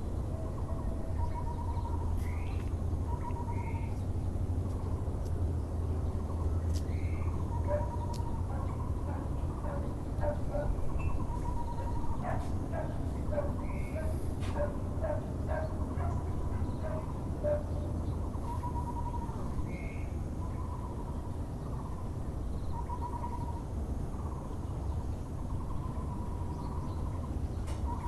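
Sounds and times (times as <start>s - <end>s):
low background rumble: 0.0s - 28.0s
barbet low pulsed calls: 0.3s - 4.0s.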